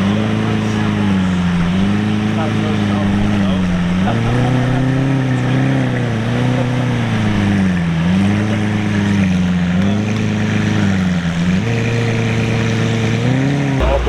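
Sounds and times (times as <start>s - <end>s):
car engine running at low revs: 13.8s - 14.0s.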